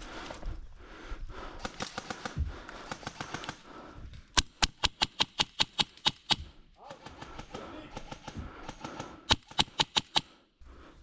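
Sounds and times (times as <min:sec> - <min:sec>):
airsoft gun rapid shots: 0:04.4 - 0:10.3.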